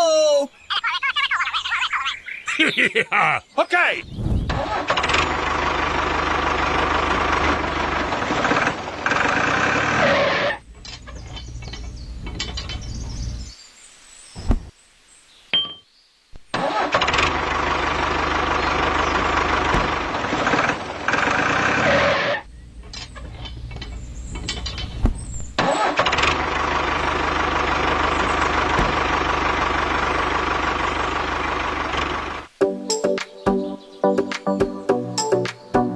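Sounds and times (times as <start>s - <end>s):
motor running: 17.0s - 22.4s, 25.8s - 32.5s.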